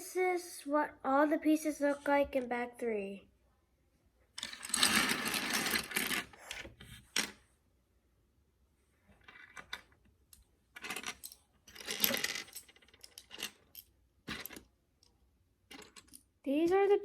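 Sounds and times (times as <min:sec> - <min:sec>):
plastic toy bricks clattering: 0:04.4 - 0:06.3, 0:10.8 - 0:14.6, 0:15.7 - 0:16.2.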